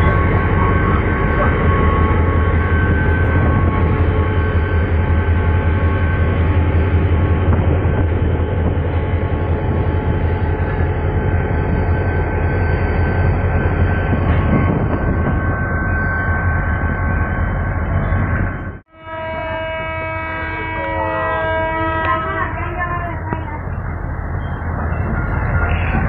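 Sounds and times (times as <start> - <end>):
low diesel engine drone: 0.0 - 15.6
train rumble: 0.0 - 26.0.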